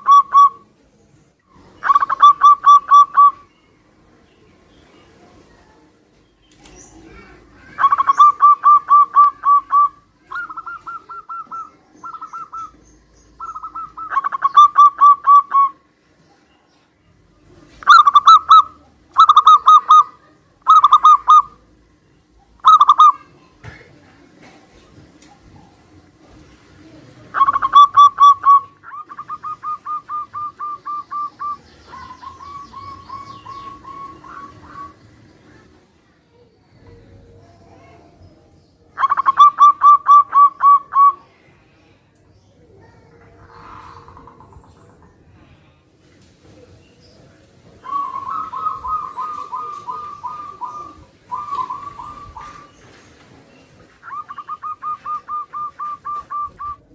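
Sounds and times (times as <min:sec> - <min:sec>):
doves cooing: 0:00.0 - 0:00.7, 0:01.5 - 0:03.5, 0:06.6 - 0:16.2, 0:17.6 - 0:21.8, 0:22.4 - 0:23.2, 0:23.9 - 0:35.2, 0:39.0 - 0:41.2, 0:43.2 - 0:45.4, 0:47.8 - 0:56.9.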